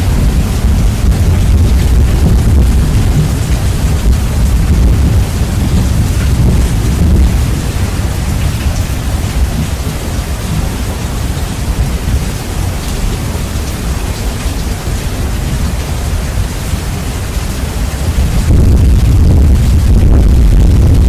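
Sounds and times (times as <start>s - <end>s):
loud low rumble: 0.0s - 12.4s, 17.2s - 21.0s
heavy rain hiss: 0.0s - 21.0s.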